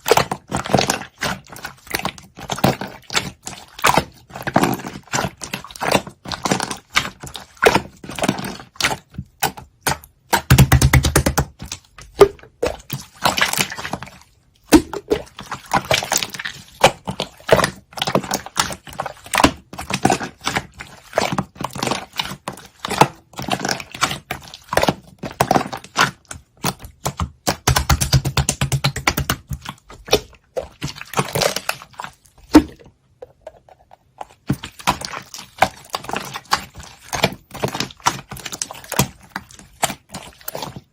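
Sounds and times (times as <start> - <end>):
slime clicking and popping: 14.6 - 32.9.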